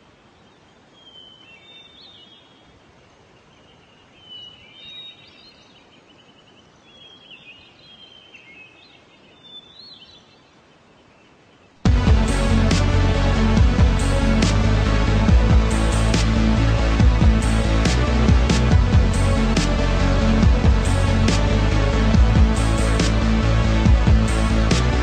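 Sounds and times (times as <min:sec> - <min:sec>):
faint bird song: 0:00.0 - 0:11.9
steady low hiss: 0:00.0 - 0:25.0.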